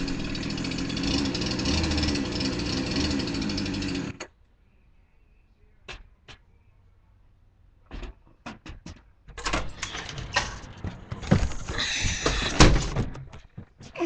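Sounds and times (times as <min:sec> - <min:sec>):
string trimmer engine running: 0:00.0 - 0:04.3.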